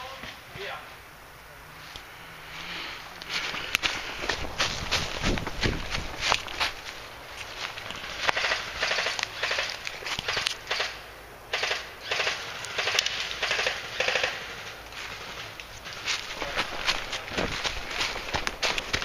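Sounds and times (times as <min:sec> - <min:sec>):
airsoft guns firing bursts: 0:08.2 - 0:14.6.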